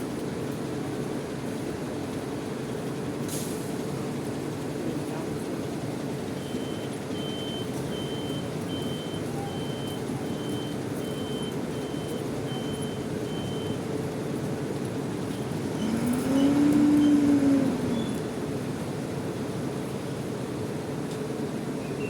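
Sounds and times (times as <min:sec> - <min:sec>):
low rumble of vehicle engines: 0:00.0 - 0:22.0
reversing alarm beeps: 0:06.4 - 0:13.9.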